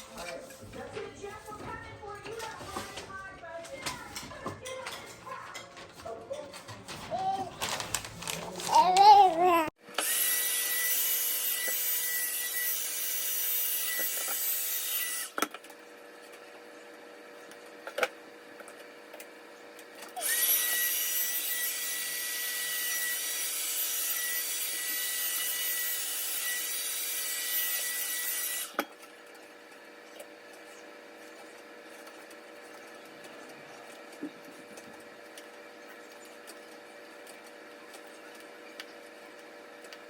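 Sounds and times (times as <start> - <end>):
small electric motor whining: 9.9 - 15.5, 20.1 - 28.9.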